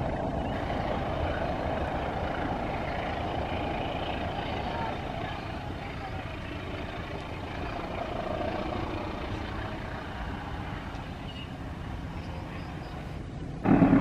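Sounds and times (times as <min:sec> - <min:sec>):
distant train rumbling over bridge: 0:00.0 - 0:14.0.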